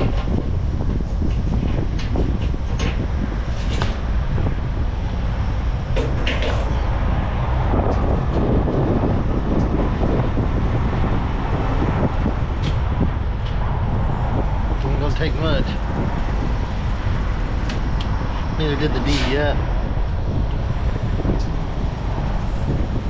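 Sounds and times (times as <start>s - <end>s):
sharp clicks and knocks: 0.0s - 4.0s, 5.9s - 6.9s
diesel truck engines idling: 0.0s - 23.0s.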